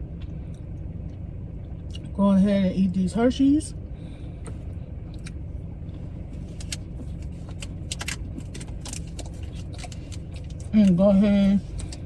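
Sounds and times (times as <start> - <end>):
car running from inside cabin: 0.0 - 12.0
light sharp clicks and rustles: 4.4 - 12.0.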